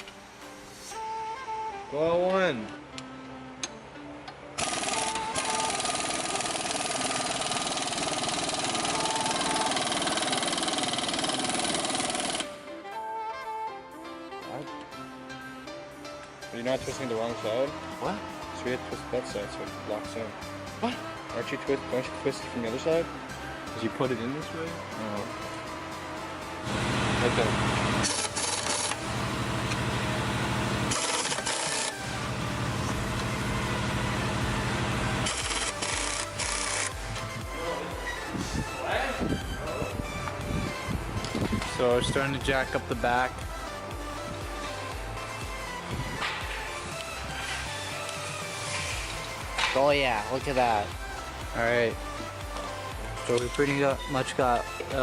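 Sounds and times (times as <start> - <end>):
background music: 0.0 - 55.0
power tool rattling: 4.6 - 12.5, 26.6 - 36.9.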